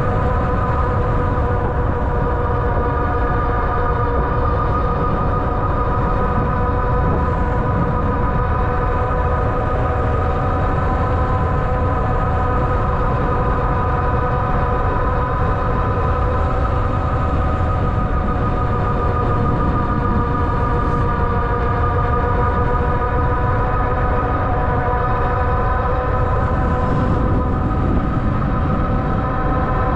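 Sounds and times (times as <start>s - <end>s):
wind and road noise rumble: 0.0s - 29.9s.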